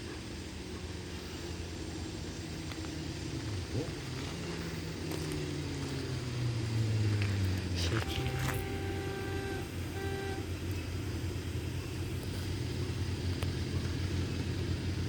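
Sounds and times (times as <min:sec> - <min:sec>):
diesel train horn blasts: 0:07.8 - 0:11.3.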